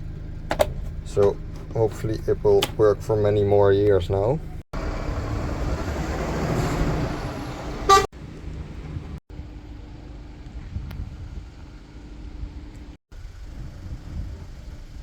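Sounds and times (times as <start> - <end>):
low engine hum: 0.0 - 15.0
road vehicle passing: 4.3 - 9.2
short horn toot: 7.9 - 8.1.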